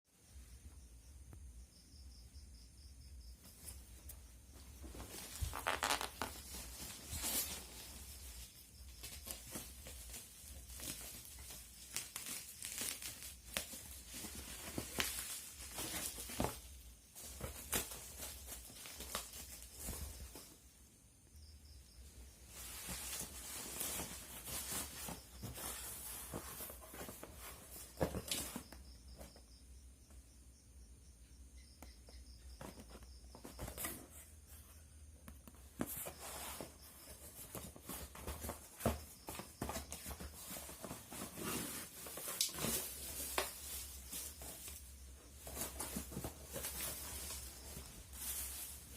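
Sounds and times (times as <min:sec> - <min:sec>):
packaging tearing and crinkling: 0:11.8 - 0:13.7.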